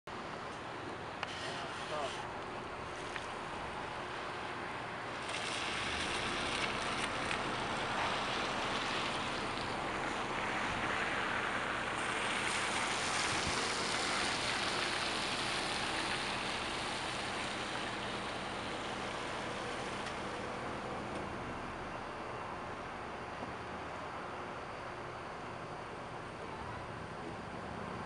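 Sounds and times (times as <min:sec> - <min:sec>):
heavy rain hissing: 0:05.1 - 0:20.3.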